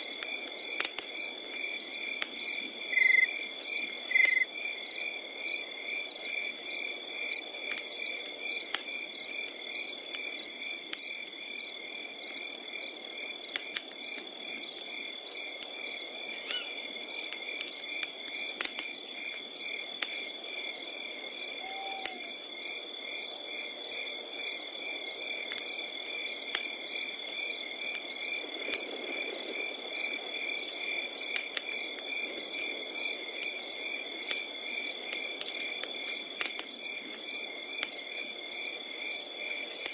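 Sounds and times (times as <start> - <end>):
campfire pops and crackles: 0.0 - 39.9
night insects chirping: 0.0 - 39.9.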